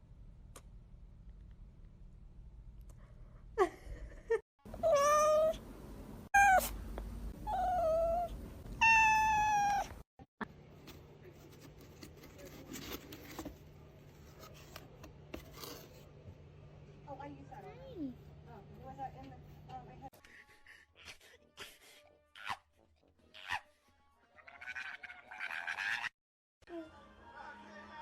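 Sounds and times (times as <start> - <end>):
cat meowing: 4.8 - 5.6, 6.4 - 6.8, 7.4 - 10.0.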